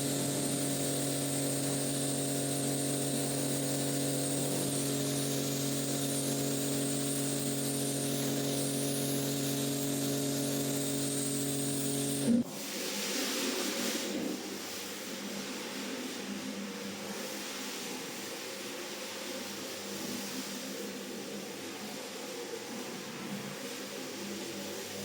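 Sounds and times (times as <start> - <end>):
electric motor humming: 0.0 - 12.4.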